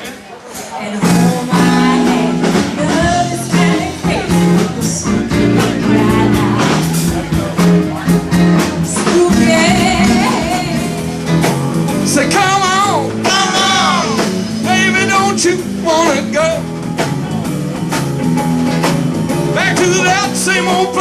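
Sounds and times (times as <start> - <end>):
blues band playing: 0.0 - 21.0
person singing: 0.6 - 7.3, 8.8 - 11.4, 12.1 - 16.4, 19.5 - 21.0.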